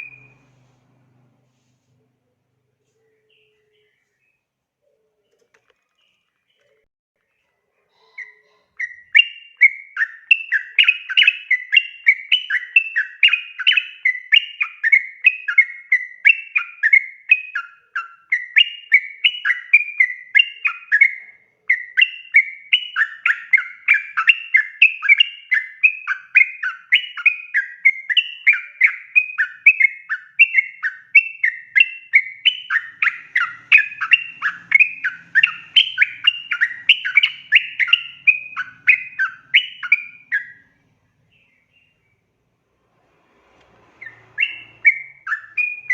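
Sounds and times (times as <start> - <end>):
bulbul rapid chirping song: 0.0 - 0.5, 8.0 - 42.2, 44.0 - 45.9.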